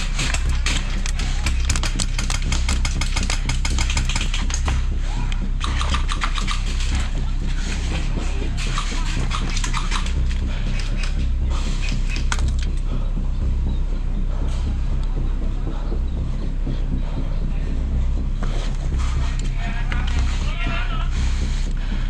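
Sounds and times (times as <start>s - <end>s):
airsoft guns firing: 0.0s - 4.8s, 5.6s - 7.0s, 8.6s - 11.1s
steady low rumble: 0.0s - 22.0s.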